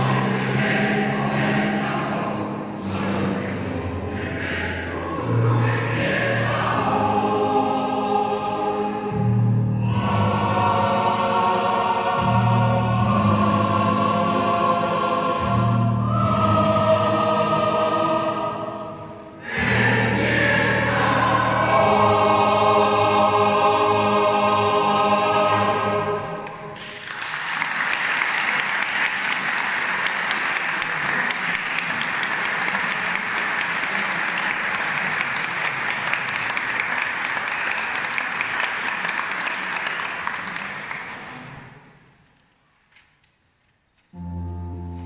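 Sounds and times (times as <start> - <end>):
choir holding a chord: 0.0 - 27.0, 44.1 - 45.0
audience applause: 26.7 - 41.6.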